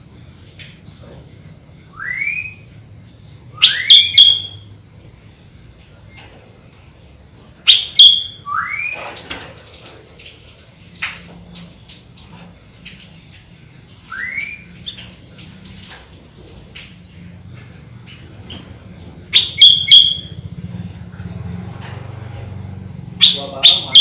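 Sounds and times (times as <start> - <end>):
bird song sharp notes and whistle: 1.9 - 2.7, 3.6 - 4.7, 7.7 - 9.0, 14.0 - 15.1, 19.3 - 20.4, 23.2 - 24.0.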